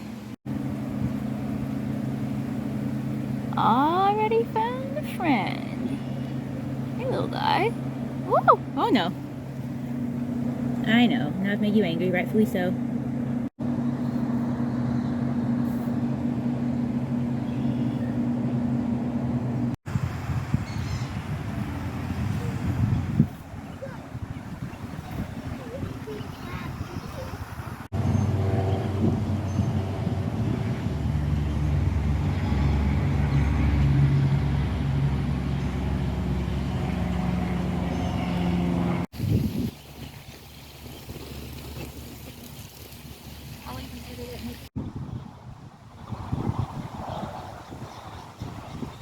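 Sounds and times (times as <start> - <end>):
low engine-like drone: 0.0 - 39.1.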